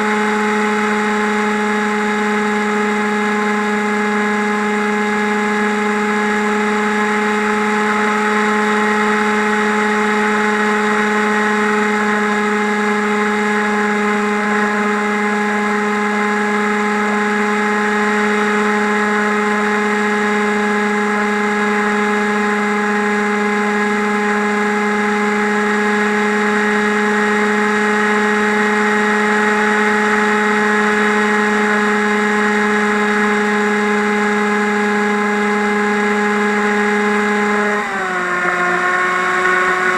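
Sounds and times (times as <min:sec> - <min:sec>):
drone motors whining: 0:35.7 - 0:39.9.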